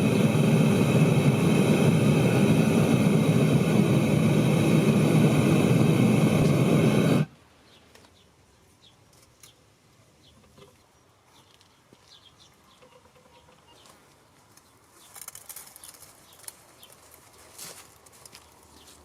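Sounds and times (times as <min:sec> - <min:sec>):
sharp clicks and scrapes: 0:14.6 - 0:17.3.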